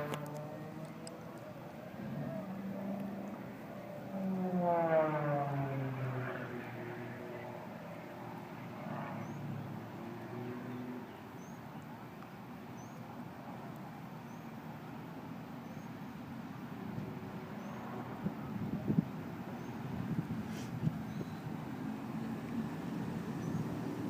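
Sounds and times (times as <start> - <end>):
distant propeller airplane drone: 0.0 - 24.0
open-air background noise: 0.0 - 24.0.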